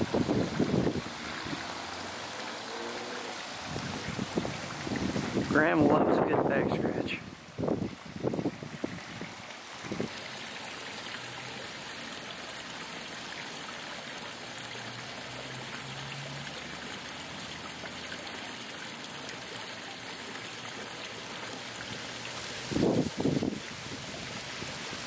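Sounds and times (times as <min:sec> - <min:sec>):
outdoor background hiss: 0:00.0 - 0:25.0.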